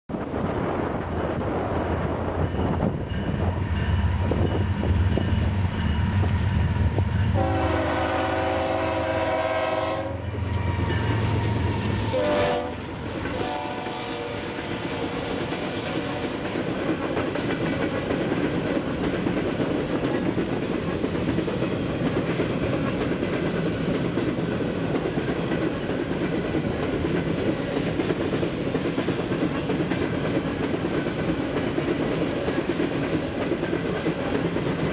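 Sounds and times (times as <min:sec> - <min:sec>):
train wheels clattering on rail: 0:00.1 - 0:34.9
diesel locomotive engines rumbling: 0:00.2 - 0:34.9
train horn: 0:07.2 - 0:16.6.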